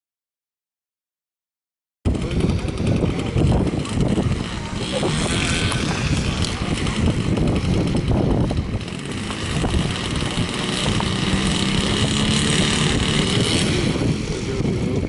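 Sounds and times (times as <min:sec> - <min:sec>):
motor running: 0:02.1 - 0:15.0
wind rumble on microphone: 0:02.1 - 0:15.0.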